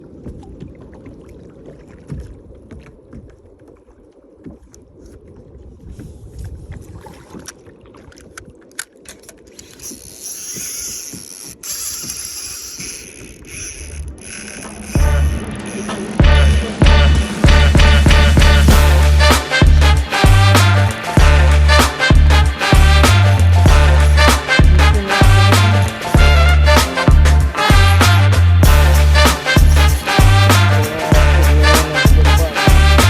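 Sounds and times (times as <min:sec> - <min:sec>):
water lapping: 0:00.0 - 0:17.6
wind noise: 0:04.4 - 0:15.7.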